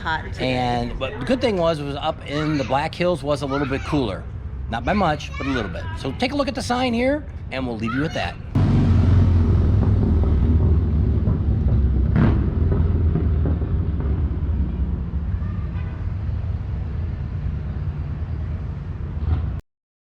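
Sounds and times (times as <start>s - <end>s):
engine low rumble: 8.4s - 19.6s.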